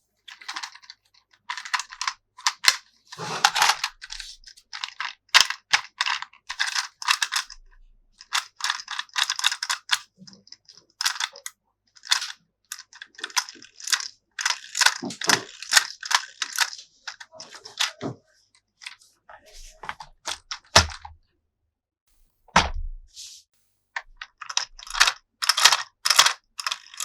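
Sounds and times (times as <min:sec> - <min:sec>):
plastic toy parts clicking: 0:00.3 - 0:07.6, 0:08.2 - 0:18.0, 0:24.0 - 0:27.0.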